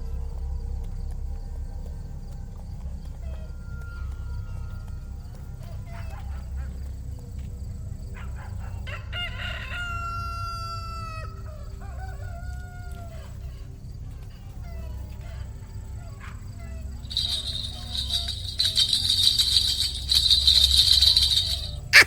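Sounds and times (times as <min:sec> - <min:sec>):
steady low hum: 0:00.0 - 0:08.8, 0:15.5 - 0:22.0
rooster crowing: 0:08.9 - 0:13.2, 0:17.1 - 0:22.0.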